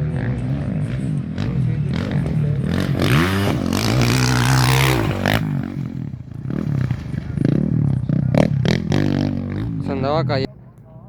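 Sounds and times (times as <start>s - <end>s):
motorcycle passing at full throttle: 0.0s - 11.0s.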